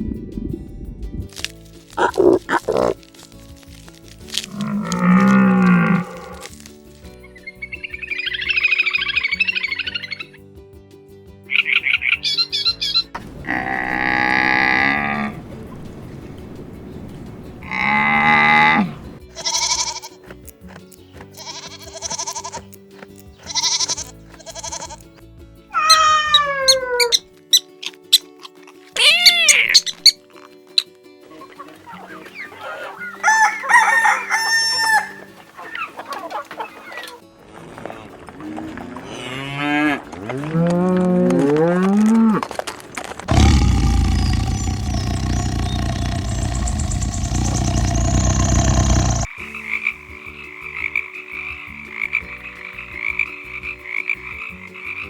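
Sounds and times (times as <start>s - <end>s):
cow mooing: 4.5s - 6.5s, 13.4s - 15.4s, 17.6s - 19.0s, 43.3s - 49.3s
goat bleating: 17.7s - 20.2s, 21.4s - 22.7s, 23.4s - 25.0s
loud low rumbling: 43.3s - 49.3s.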